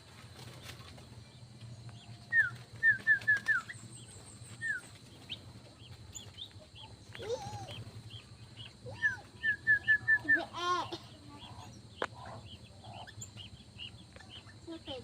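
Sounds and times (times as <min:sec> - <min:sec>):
sharp falling bird whistles: 0:02.4 - 0:03.8.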